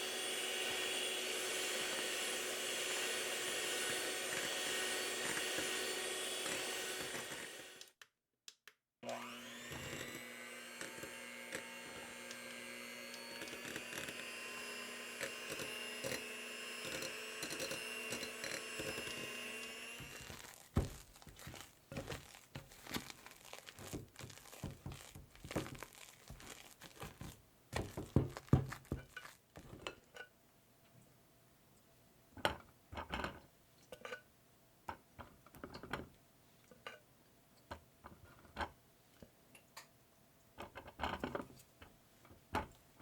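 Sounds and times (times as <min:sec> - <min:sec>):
electric mixer running: 0:00.0 - 0:07.9, 0:09.0 - 0:22.2
utensils scraping a bowl: 0:13.1 - 0:23.1.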